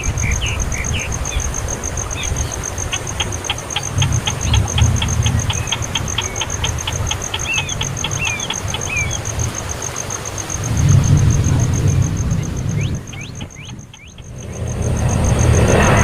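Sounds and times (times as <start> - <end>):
high insect-like trill: 0.0 - 16.0
baby bird chirping: 0.1 - 9.4, 12.4 - 14.5.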